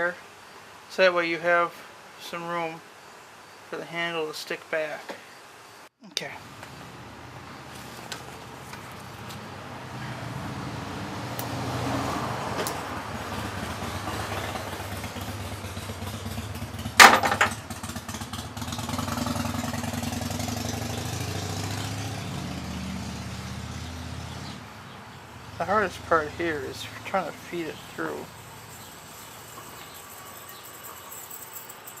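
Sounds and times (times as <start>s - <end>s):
engine humming: 6.4s - 32.0s
loud sharp clank: 17.0s - 17.6s.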